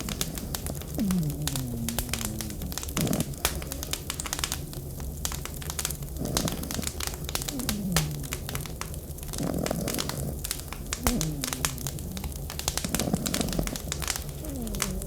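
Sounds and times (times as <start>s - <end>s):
wood fire crackling: 0.0s - 15.0s
dog whining: 0.9s - 4.0s, 7.4s - 8.6s, 11.0s - 12.5s, 13.2s - 15.0s.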